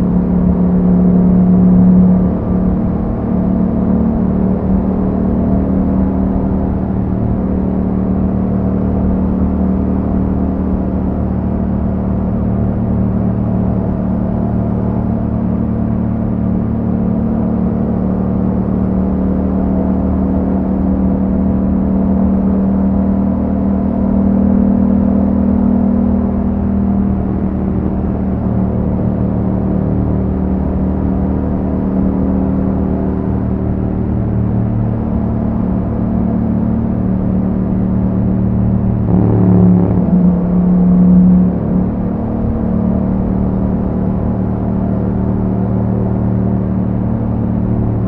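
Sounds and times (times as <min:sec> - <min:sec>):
motorcycle engine running: 0:33.5 - 0:48.0.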